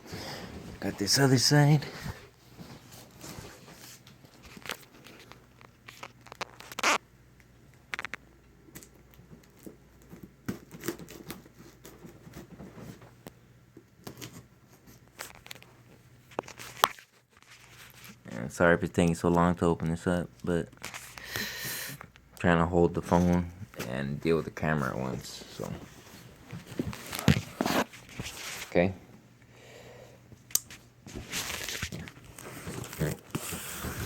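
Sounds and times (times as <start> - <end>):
cardboard rustling: 23.0 - 28.9, 31.0 - 34.0.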